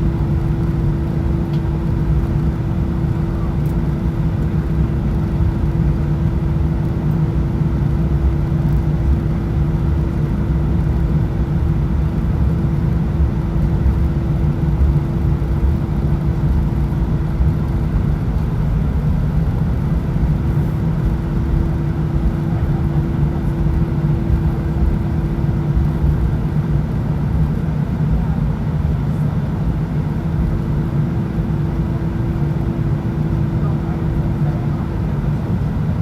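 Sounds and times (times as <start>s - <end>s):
airplane cabin engine rumble: 0.0s - 36.0s.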